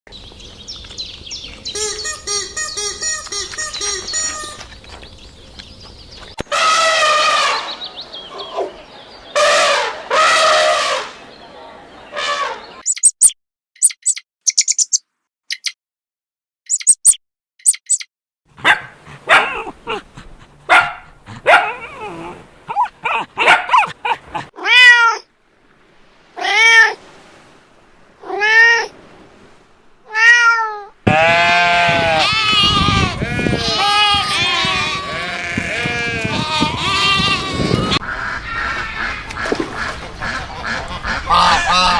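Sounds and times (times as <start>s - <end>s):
birds chirping: 0.1s - 15.8s, 16.7s - 18.0s, 20.7s - 24.5s, 31.1s - 41.9s
farm animal calling: 1.7s - 4.8s, 20.7s - 25.2s, 31.1s - 41.9s
cat meowing: 24.6s - 25.3s, 30.1s - 38.0s
loud animal bleat: 31.0s - 38.0s.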